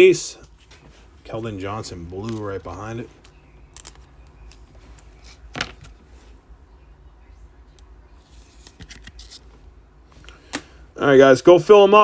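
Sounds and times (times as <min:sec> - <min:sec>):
low steady hum: 0:00.0 - 0:12.0
cards clicking and rustling: 0:02.0 - 0:06.2, 0:08.2 - 0:09.6.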